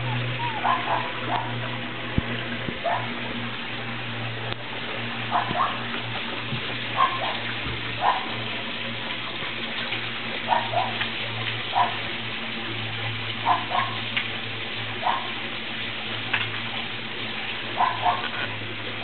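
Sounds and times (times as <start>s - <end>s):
puppies crying: 0.0s - 1.6s
low steady hum: 0.0s - 19.0s.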